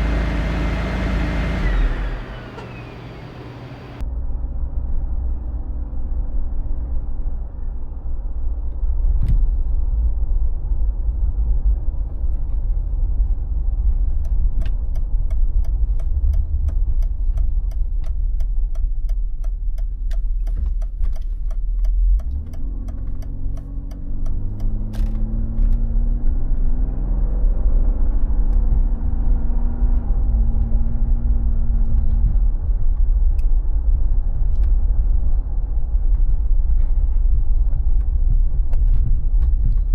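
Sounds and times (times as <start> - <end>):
car engine rumbling: 0.0 - 4.0, 8.8 - 39.9.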